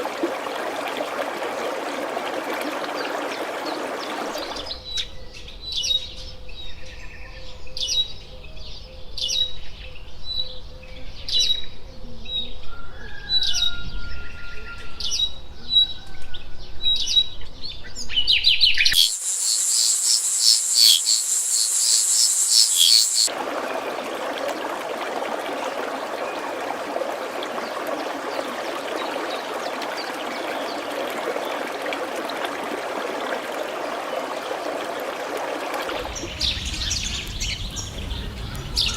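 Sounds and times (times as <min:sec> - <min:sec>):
stream water rushing: 0:00.0 - 0:04.6, 0:19.0 - 0:36.1
birds chirping: 0:18.9 - 0:23.3
very high dense chirping: 0:18.9 - 0:23.3
whistled glide: 0:19.0 - 0:23.3.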